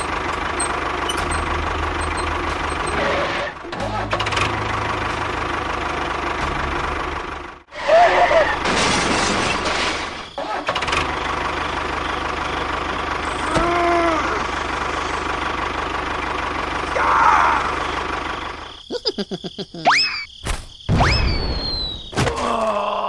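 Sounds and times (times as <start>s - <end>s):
small engine running: 14.1s - 18.7s.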